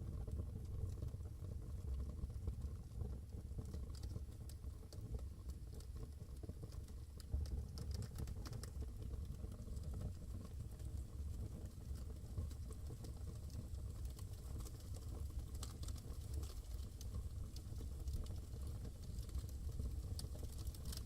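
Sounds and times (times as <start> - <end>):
low fire rumble: 0.0 - 21.0
wood fire crackling and popping: 0.1 - 21.0.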